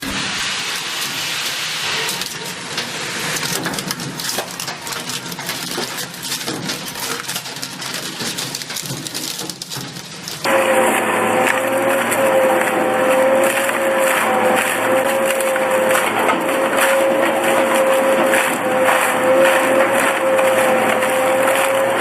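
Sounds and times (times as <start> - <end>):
shredder crushing metal: 0.0 - 22.0
steady held tone: 10.5 - 22.0.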